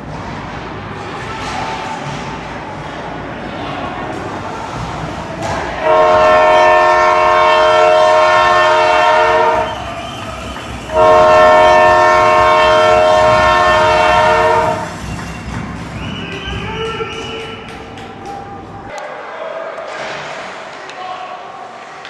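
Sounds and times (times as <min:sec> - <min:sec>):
arena horn blasts: 0:05.4 - 0:15.1.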